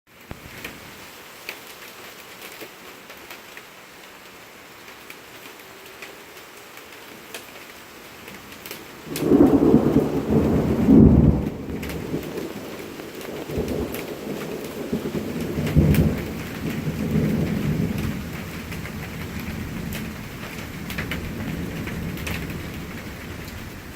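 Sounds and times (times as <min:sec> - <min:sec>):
steady rain: 0:00.1 - 0:23.9
thunder rumbling: 0:08.4 - 0:23.9.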